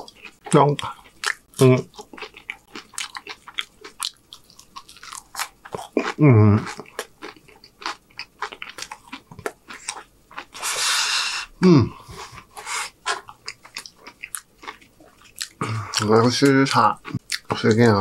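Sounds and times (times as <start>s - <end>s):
chewing crunchy food: 0.0s - 10.9s, 12.1s - 18.0s
short falling vocal sound: 11.6s - 12.0s.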